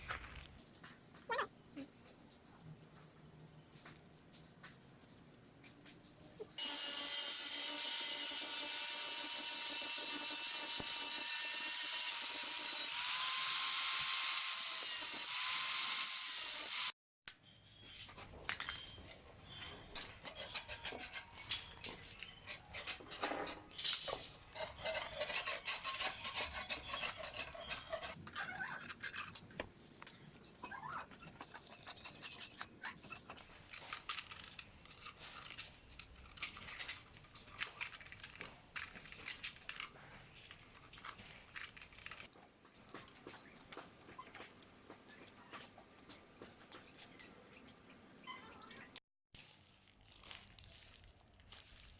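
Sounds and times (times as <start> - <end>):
small power tool running: 6.6 - 17.0.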